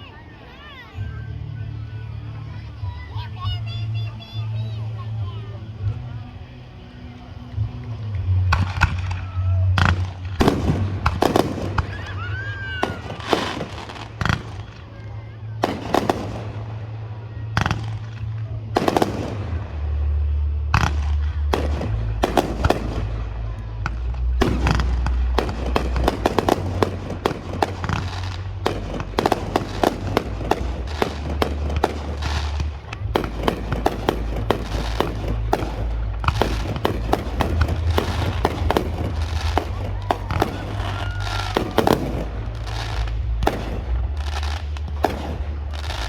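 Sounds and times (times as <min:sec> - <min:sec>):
music with low bass: 0:01.0 - 0:46.0
fireworks booming and crackling: 0:07.1 - 0:46.0.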